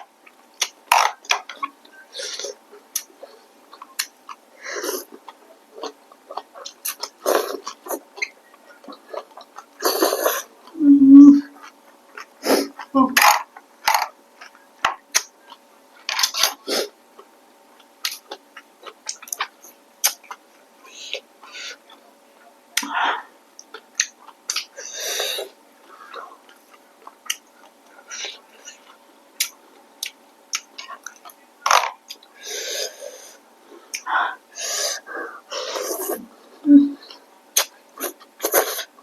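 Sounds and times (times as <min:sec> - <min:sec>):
noisy mouth sounds: 0:00.6 - 0:17.0, 0:18.0 - 0:31.4, 0:32.0 - 0:39.0
lip-smacking clicks: 0:03.7 - 0:04.4, 0:37.6 - 0:38.6.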